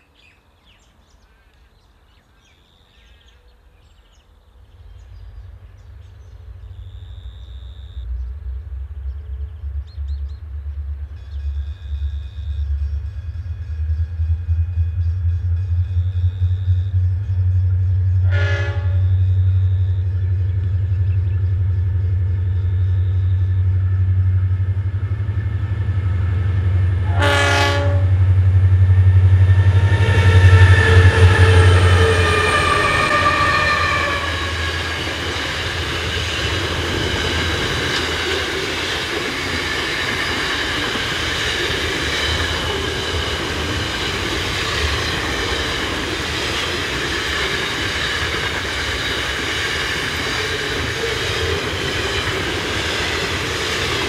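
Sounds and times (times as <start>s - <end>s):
locomotive engine drone: 4.8s - 54.0s
train horn blasts: 17.9s - 20.4s, 27.0s - 28.4s, 29.4s - 35.0s
squealing wheels: 29.7s - 54.0s.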